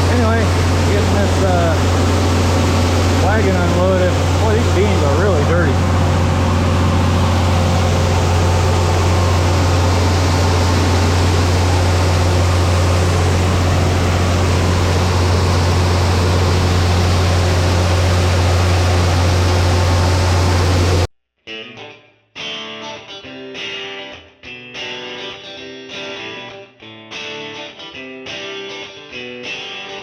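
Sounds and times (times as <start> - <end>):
low engine hum: 0.0 - 21.1.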